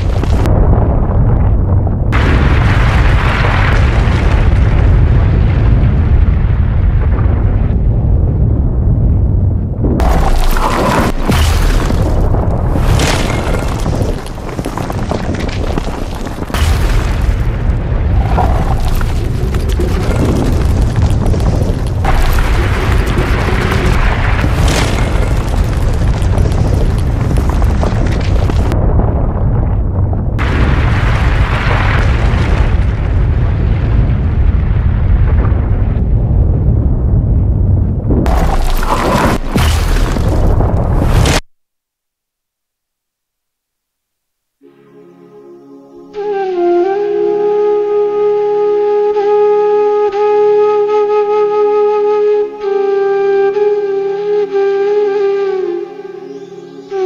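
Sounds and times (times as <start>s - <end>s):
heavy low rumble: 0.0s - 41.2s
explosion blast: 0.0s - 41.4s
background music: 44.6s - 57.0s.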